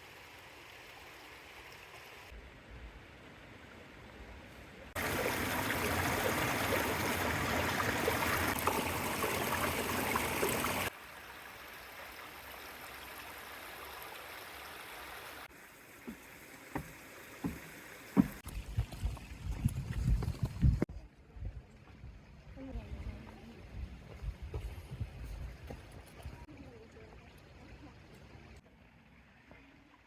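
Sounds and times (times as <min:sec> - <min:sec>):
creek water rushing: 0:04.8 - 0:19.1.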